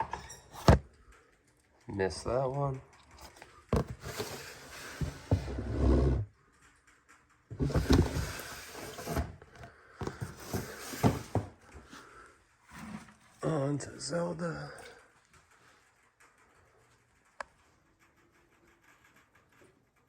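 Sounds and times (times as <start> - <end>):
rustling and knocking: 3.0 - 12.2.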